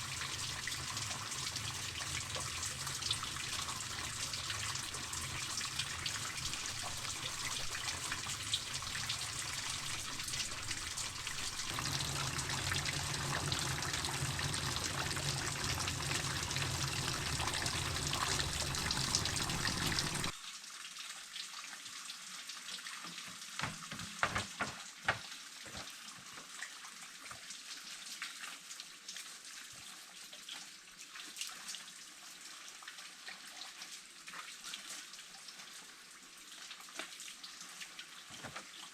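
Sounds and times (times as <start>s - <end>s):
running water trickling: 0.0s - 38.9s.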